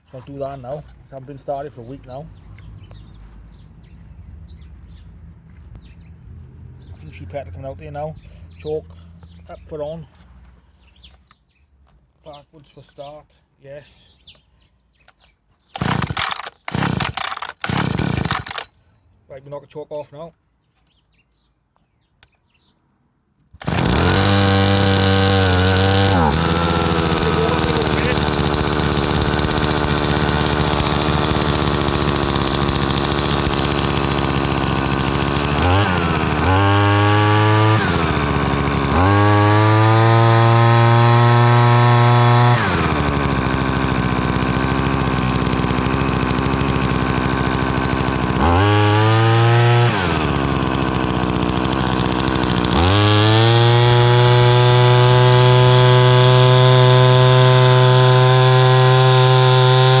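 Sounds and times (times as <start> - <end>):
strimmer engine revving: 15.8 - 18.7, 23.6 - 60.0.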